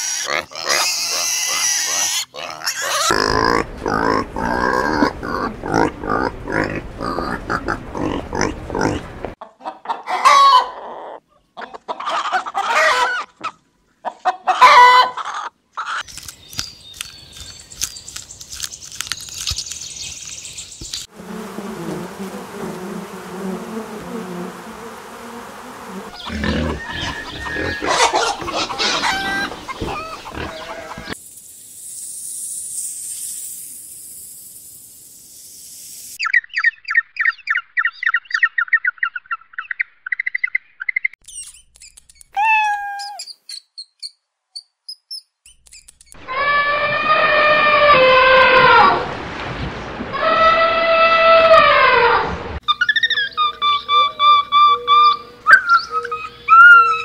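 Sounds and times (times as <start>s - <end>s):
chicken calls: 0.0s - 3.6s, 7.1s - 19.6s, 26.1s - 31.2s, 50.1s - 57.0s
honeybees buzzing: 21.1s - 27.8s
penguins chirping: 52.7s - 57.0s.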